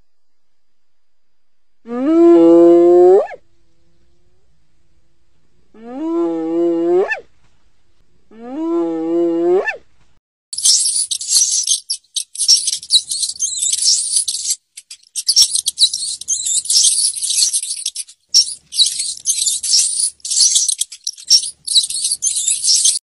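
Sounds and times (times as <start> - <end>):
rat squeaking: 10.6 - 23.0.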